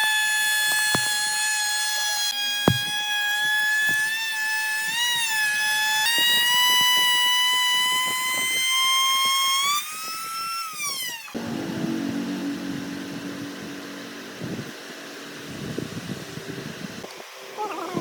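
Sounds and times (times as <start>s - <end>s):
power tool motor whining: 0.6s - 1.4s, 2.0s - 4.1s.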